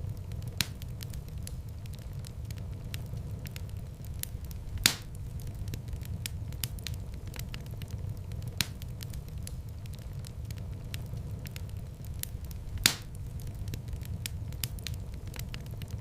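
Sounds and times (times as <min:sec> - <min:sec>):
sharp pops from fire: 0:00.0 - 0:16.0
wood fire crackling: 0:00.0 - 0:16.0.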